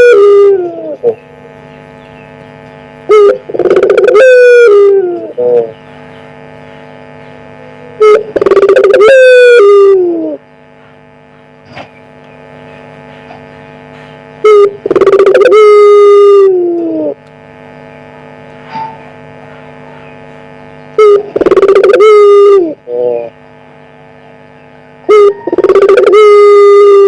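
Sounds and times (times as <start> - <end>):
dove cooing: 0.0 - 1.5, 3.1 - 5.8, 7.8 - 10.4, 14.4 - 17.2, 21.0 - 23.4, 25.1 - 27.0
steady hum: 0.0 - 27.0.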